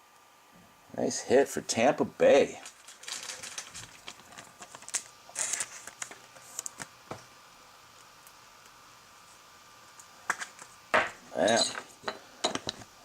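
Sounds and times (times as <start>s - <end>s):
cards rustling: 2.6s - 6.9s.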